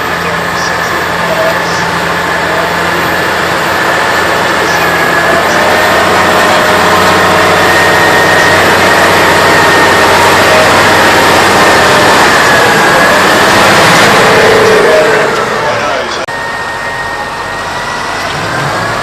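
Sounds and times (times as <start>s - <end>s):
tractor engine under load: 0.0s - 19.0s.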